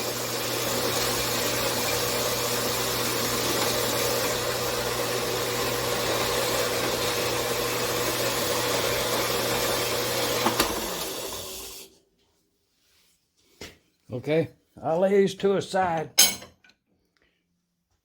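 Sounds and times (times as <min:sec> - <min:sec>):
bandsaw cutting metal: 0:00.0 - 0:11.7.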